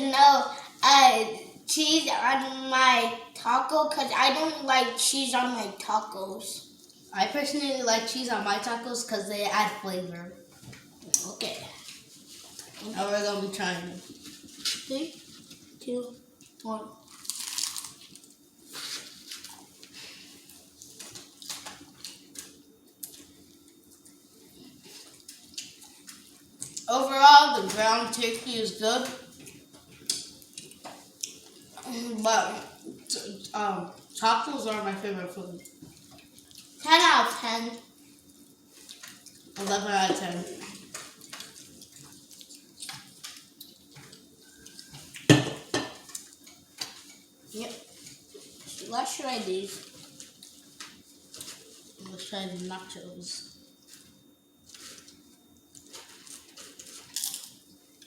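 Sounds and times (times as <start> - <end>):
crisp bites: 17.1 - 18.0
chewing noises: 40.6 - 45.3.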